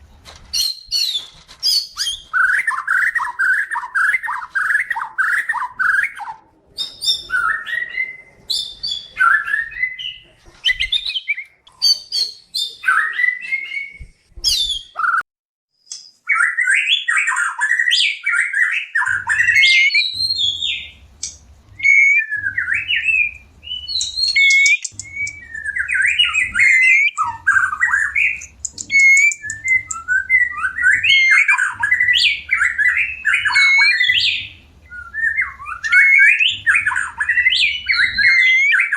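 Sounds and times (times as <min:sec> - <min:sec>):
songbird singing varied phrases: 0:15.9 - 0:38.9.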